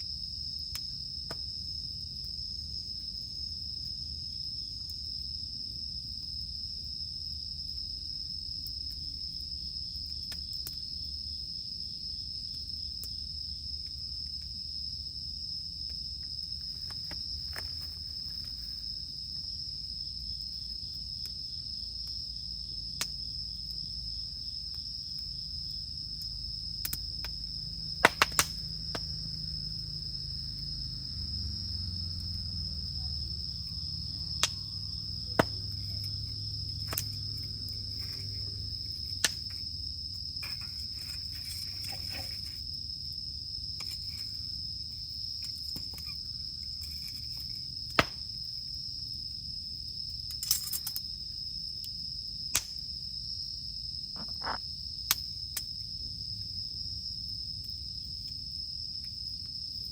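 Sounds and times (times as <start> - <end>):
cicadas droning: 0.0 - 59.9
campfire crackling and popping: 0.1 - 14.8, 15.4 - 31.3, 32.2 - 48.6, 52.5 - 53.0.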